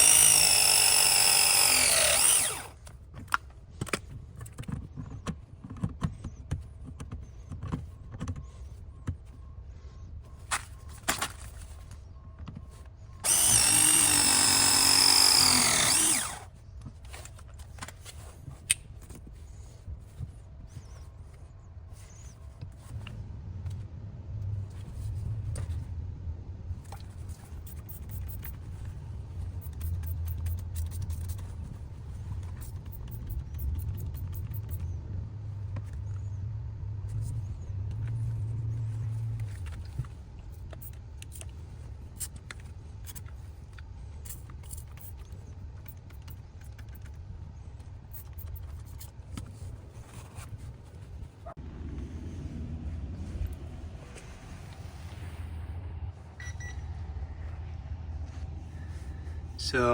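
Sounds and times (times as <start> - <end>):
power drill running: 0.0 - 2.8, 13.2 - 16.5
low steady hum: 33.2 - 59.9.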